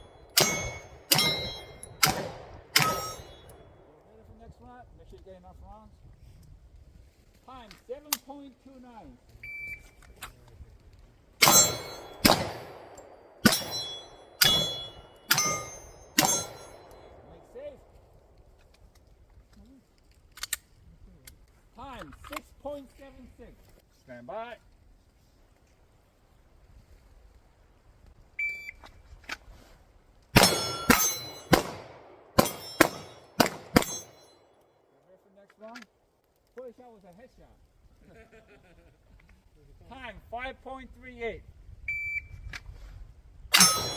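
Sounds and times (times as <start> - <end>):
steel plate ringing: 0.0 - 3.7, 11.4 - 12.8, 13.4 - 17.1, 30.4 - 31.6, 32.4 - 34.4, 43.5 - 43.9
pistol shots: 0.2 - 3.5, 11.4 - 17.2, 30.4 - 34.4.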